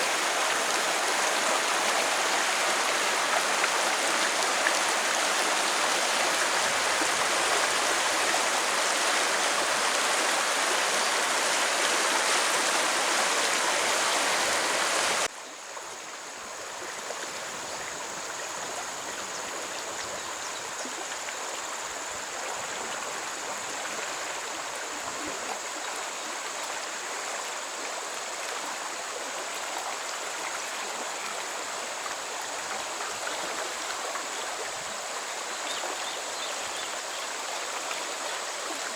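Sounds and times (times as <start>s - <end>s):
stream water rushing: 0.0s - 20.2s.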